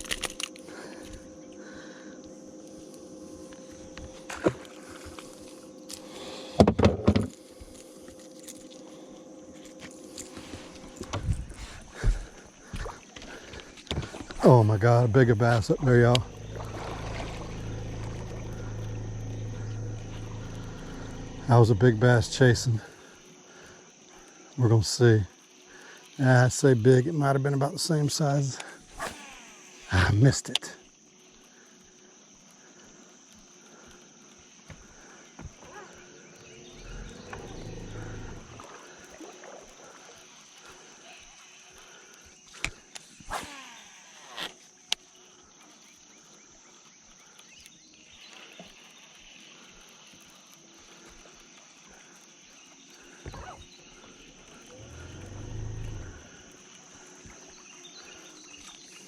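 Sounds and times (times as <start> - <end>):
insects droning: 0.0 - 59.0
low rushing swells: 15.7 - 22.8.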